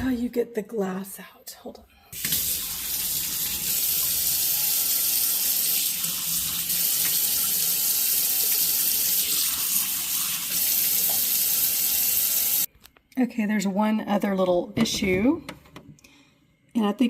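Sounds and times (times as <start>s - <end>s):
water running from a faucet: 2.2s - 12.7s.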